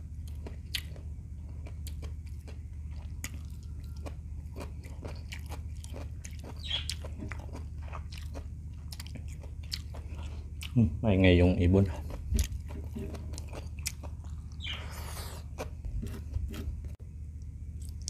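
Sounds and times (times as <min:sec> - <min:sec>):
low hum: 0:00.0 - 0:18.0
wet chewing clicks and smacks: 0:00.2 - 0:10.8, 0:11.9 - 0:16.9.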